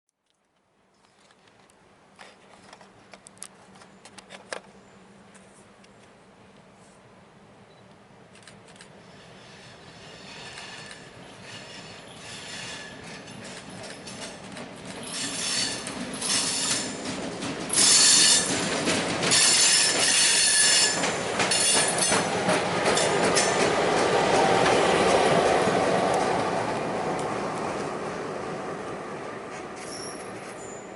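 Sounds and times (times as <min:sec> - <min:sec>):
wheels rolling on rail: 0:01.0 - 0:06.7, 0:08.3 - 0:30.9
train wheels squealing: 0:09.0 - 0:17.1, 0:17.7 - 0:22.4, 0:29.5 - 0:30.9.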